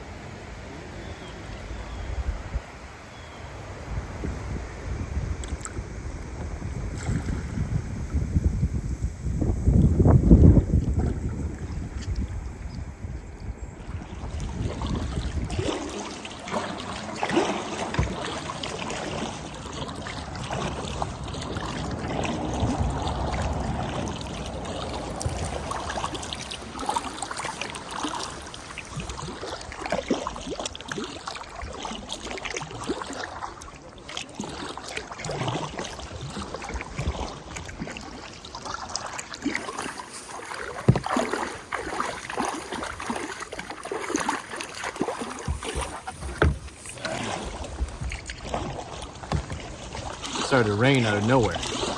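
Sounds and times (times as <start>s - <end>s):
moving water: 0.0s - 51.9s
paddle splashes: 1.0s - 51.9s
wind rumble on microphone: 1.6s - 2.9s, 3.5s - 16.0s, 19.0s - 27.2s, 35.2s - 37.9s, 45.5s - 51.9s
knocks against boat: 17.2s - 19.3s, 40.5s - 42.1s, 45.0s - 50.4s.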